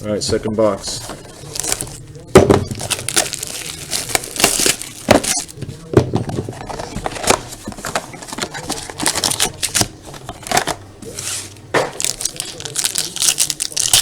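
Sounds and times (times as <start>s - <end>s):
wrapping crinkling and tearing: 1.4s - 2.0s, 2.8s - 5.6s, 6.6s - 14.0s
handling knocks: 2.3s - 10.8s.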